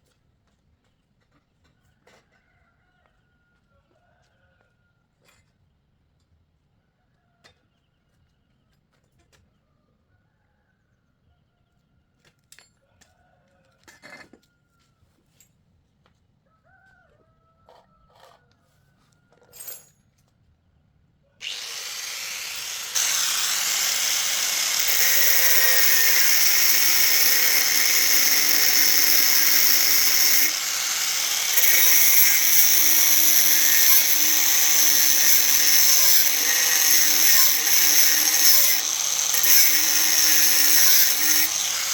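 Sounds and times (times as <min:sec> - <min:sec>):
handheld power tool running: 0:21.4 - 0:41.9.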